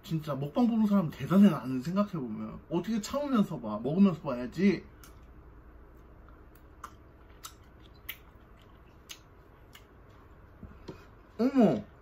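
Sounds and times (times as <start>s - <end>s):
low steady hum: 0.0s - 12.0s
chewing clicks: 6.2s - 9.9s.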